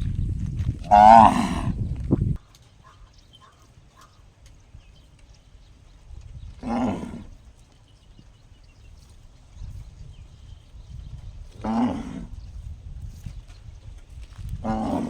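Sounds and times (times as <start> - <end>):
low rumbling noise: 0.0 - 2.4
cow mooing: 0.9 - 1.8, 11.6 - 12.4, 14.6 - 15.0.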